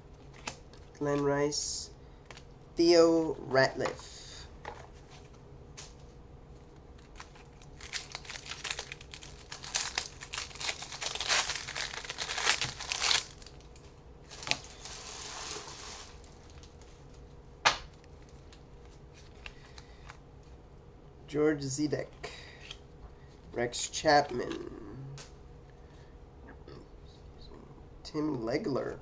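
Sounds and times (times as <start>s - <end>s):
cards rustling: 7.0s - 14.9s
wrapper crinkling and tearing: 7.0s - 16.8s.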